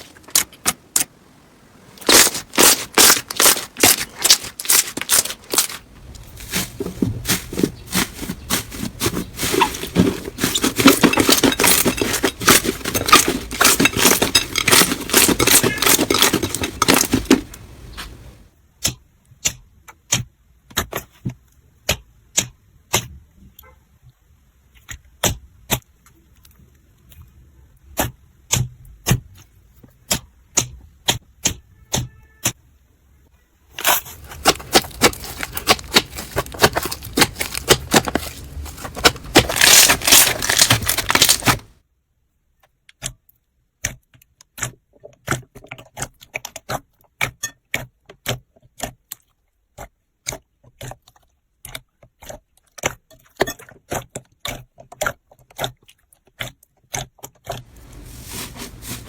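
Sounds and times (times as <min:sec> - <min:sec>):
dense crackling: 0:34.1 - 0:41.7.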